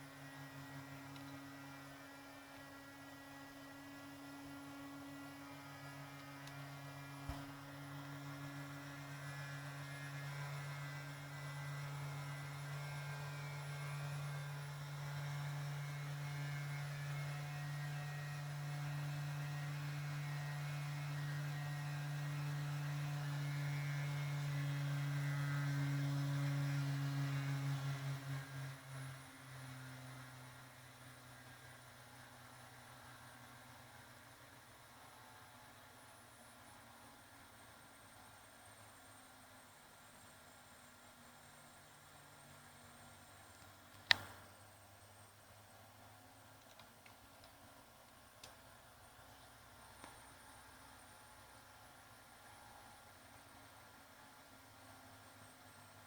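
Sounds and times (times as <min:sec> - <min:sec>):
brief click: 0:43.9 - 0:44.4.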